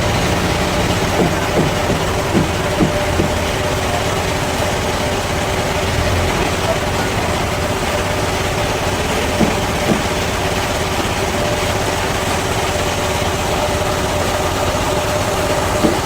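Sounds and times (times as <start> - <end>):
sawmill machinery humming: 0.0 - 16.0
brief knocks: 9.4 - 10.4, 15.8 - 16.0.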